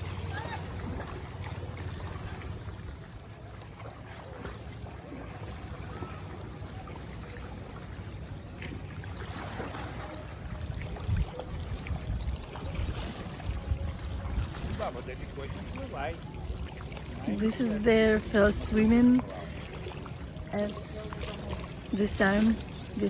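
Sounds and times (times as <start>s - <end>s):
water lapping at shore: 0.0s - 23.0s
wind rumble on microphone: 8.2s - 19.2s.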